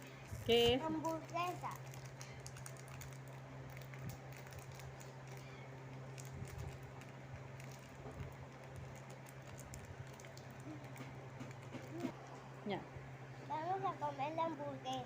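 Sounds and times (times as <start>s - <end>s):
steady low hum: 0.0s - 15.0s
plastic wrapper crackling: 0.3s - 12.1s.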